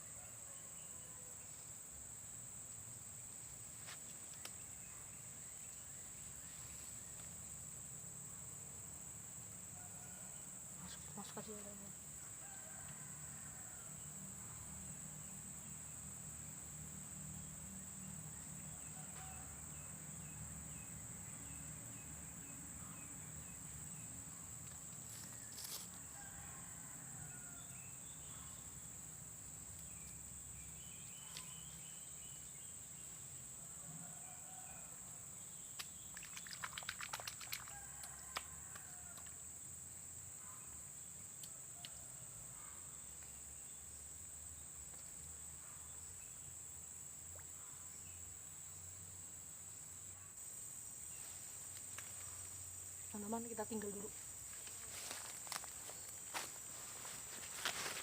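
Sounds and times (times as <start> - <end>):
insects droning: 0.0 - 58.0
faint bird chirps: 30.8 - 32.8.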